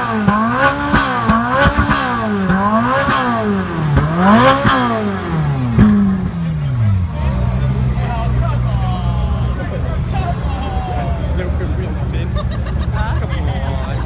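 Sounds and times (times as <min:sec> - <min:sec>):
sports car engine revving: 0:00.0 - 0:10.4
exhaust cracks: 0:00.0 - 0:12.6.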